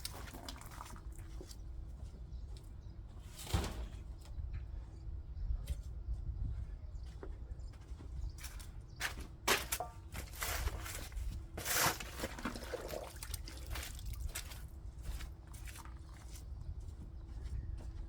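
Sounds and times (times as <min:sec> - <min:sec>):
scraping and knocking in soil: 0:08.4 - 0:16.6.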